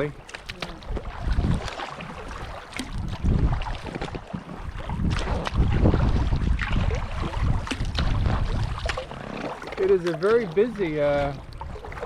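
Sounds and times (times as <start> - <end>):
paddle splashes in water: 0.0 - 12.0
wind buffeting microphone: 0.0 - 12.0.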